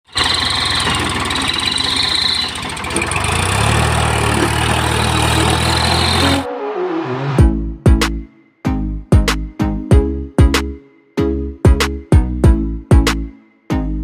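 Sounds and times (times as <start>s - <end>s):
heavy diesel engine under load: 0.0s - 6.5s.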